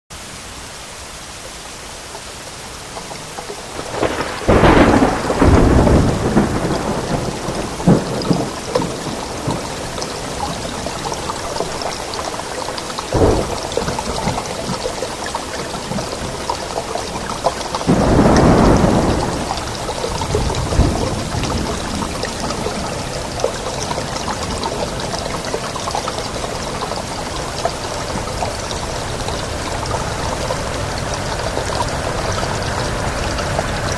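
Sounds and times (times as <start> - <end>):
steady rain: 0.1 - 33.9
thunderclap: 3.7 - 10.7, 13.1 - 14.6, 17.9 - 25.4
rumble of thunder: 3.7 - 11.9, 13.1 - 27.4
sharp thunder crack: 3.8 - 9.6, 17.9 - 22.4.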